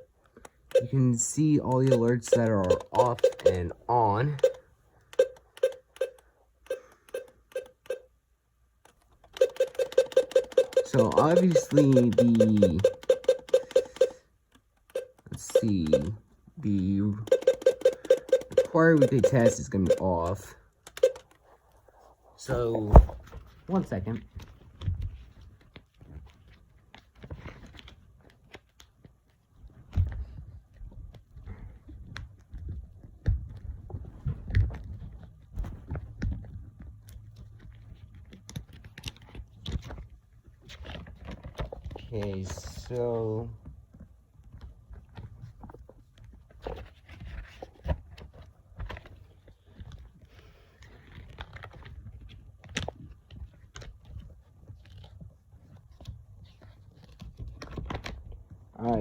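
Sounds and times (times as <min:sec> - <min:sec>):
radio buttons clicking: 0:01.7 - 0:03.8, 0:09.3 - 0:14.2.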